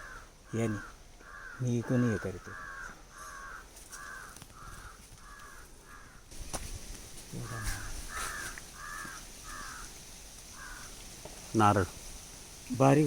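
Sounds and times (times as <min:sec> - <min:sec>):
crow cawing: 0:00.0 - 0:06.3, 0:07.4 - 0:11.0.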